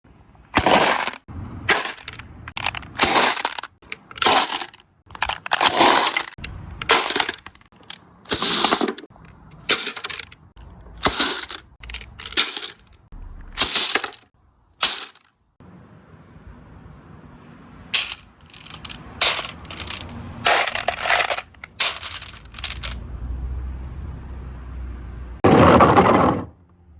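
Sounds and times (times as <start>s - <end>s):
marbles clattering down marble run: 0.6s - 9.1s, 9.7s - 10.4s, 11.0s - 12.9s, 13.6s - 14.2s, 18.0s - 23.0s.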